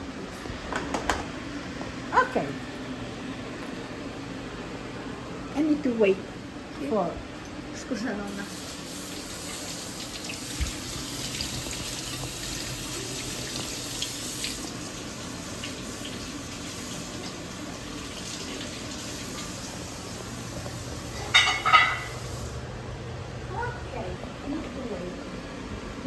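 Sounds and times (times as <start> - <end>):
water running: 7.8 - 26.0.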